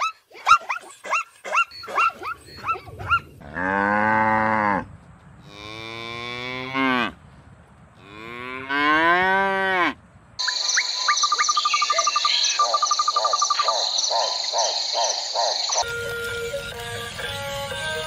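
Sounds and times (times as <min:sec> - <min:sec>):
cattle mooing: 0:03.4 - 0:04.9, 0:05.5 - 0:07.2.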